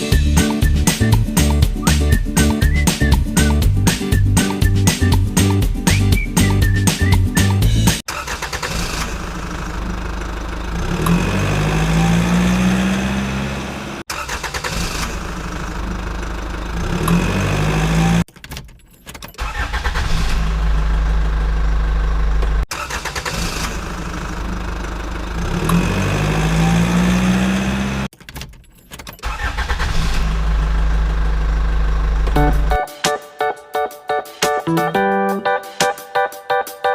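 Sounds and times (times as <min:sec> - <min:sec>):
engine revving: 0:06.4 - 0:18.3, 0:19.4 - 0:28.1, 0:29.2 - 0:32.8.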